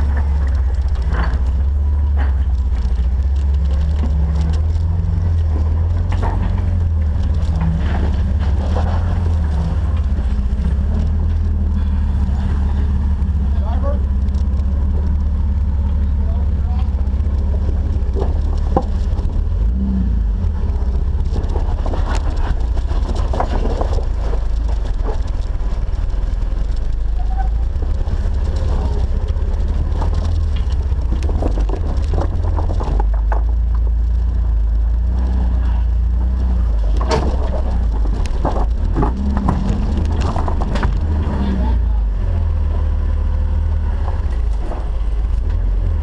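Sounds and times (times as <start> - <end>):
engine low rumble: 0.0 - 46.0.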